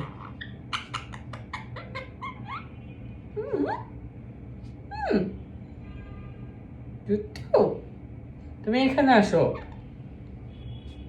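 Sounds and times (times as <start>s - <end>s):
parrot descending call: 0.0s - 2.8s
parrot warbling calls: 0.0s - 4.0s.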